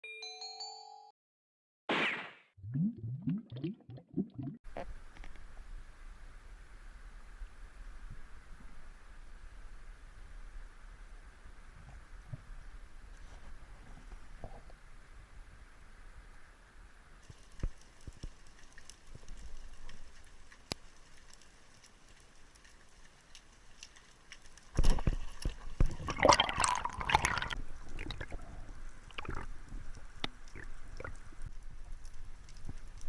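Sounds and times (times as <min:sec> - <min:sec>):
water splashing and bubbling: 0:02.6 - 0:04.6, 0:24.8 - 0:31.6.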